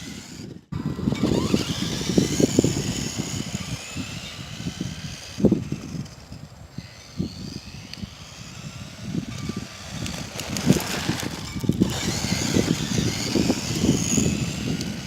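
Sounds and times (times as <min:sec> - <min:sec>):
toy car electric motor whining: 0:00.0 - 0:15.0
wind buffeting microphone: 0:00.0 - 0:15.0.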